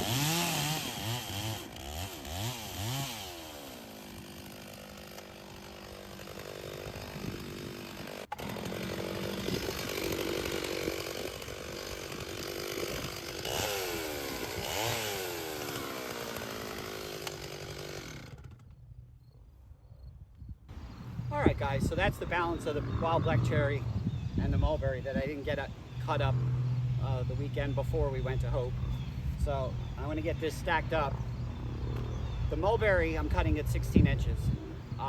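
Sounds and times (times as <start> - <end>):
chainsaw cutting logs: 0.0 - 19.0, 20.7 - 35.0.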